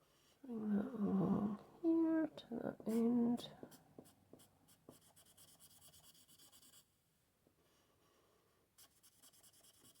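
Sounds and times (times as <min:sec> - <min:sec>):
marker nib scratching on card: 0:08.8 - 0:10.0.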